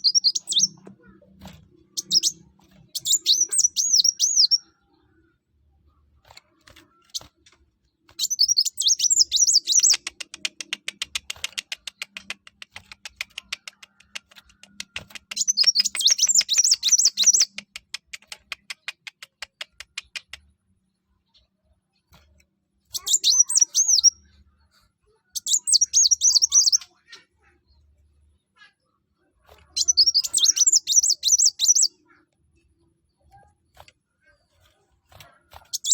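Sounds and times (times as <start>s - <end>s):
sunbird twittering: 0.0s - 0.8s, 1.9s - 4.7s, 8.2s - 10.1s, 29.8s - 31.9s
fast ticking bird notes: 0.0s - 1.1s, 1.8s - 4.7s, 8.2s - 20.4s, 29.8s - 31.9s.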